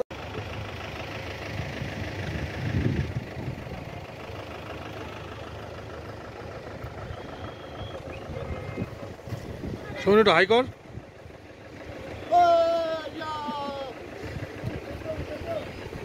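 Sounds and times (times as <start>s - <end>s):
motorcycle engine idling: 0.1s - 16.0s.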